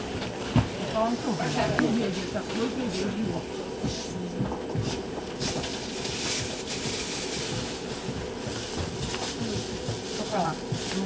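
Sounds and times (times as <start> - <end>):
train running hum: 0.0 - 11.0.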